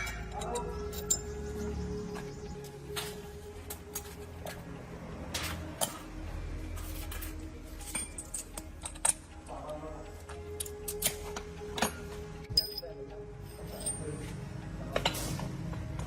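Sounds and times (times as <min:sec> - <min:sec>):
metallic clinks of hand tools: 0:00.0 - 0:01.4, 0:11.8 - 0:14.3.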